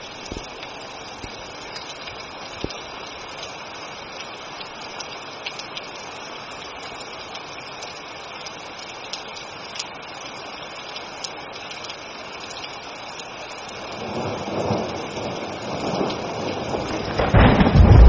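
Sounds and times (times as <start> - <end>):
sharp drip ticks: 0.0 - 14.4
heavy rain: 0.0 - 18.0
thunder rumble: 14.0 - 18.0.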